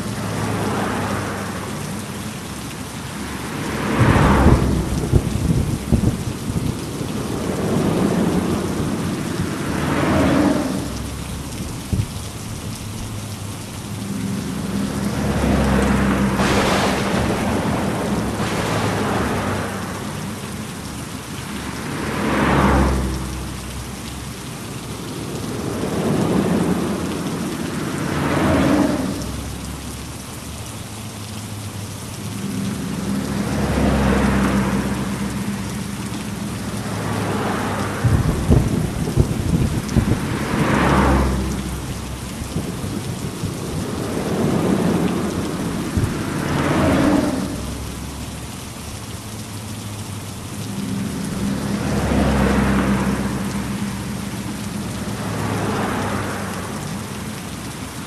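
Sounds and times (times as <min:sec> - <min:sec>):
heavy rain falling: 0:00.0 - 0:58.0
thunder rumbling: 0:03.7 - 0:12.2, 0:14.1 - 0:20.8, 0:32.3 - 0:47.9.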